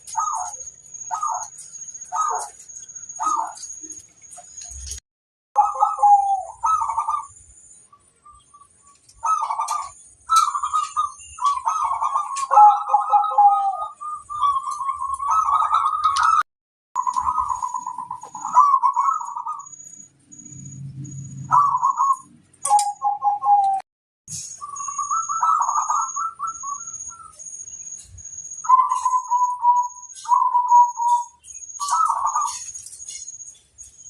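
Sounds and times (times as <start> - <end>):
doves cooing: 0.0 - 4.0, 5.6 - 7.3, 9.0 - 16.4, 17.0 - 19.7, 21.4 - 23.8, 24.7 - 27.3, 28.6 - 32.8.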